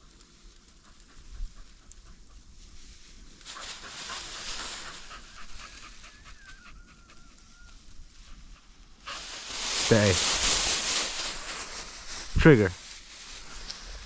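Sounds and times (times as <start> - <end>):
dog panting hard: 3.5 - 7.2.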